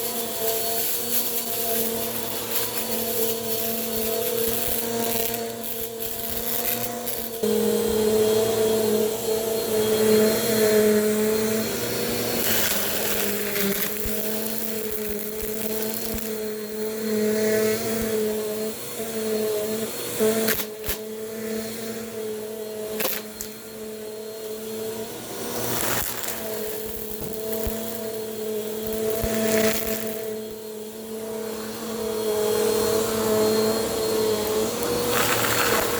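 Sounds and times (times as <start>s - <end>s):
debris clicking in vacuum: 0.0s - 7.4s, 12.4s - 16.4s, 23.0s - 23.6s, 25.6s - 30.6s, 34.4s - 35.9s
vacuum cleaner running: 0.0s - 35.9s.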